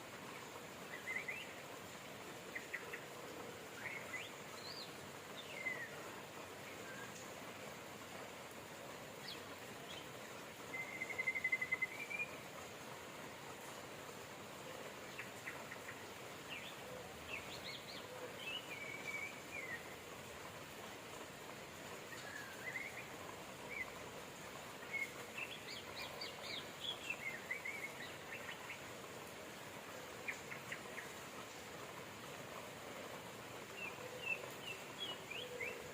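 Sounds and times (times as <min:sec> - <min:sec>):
steady rain: 0:00.0 - 0:35.9.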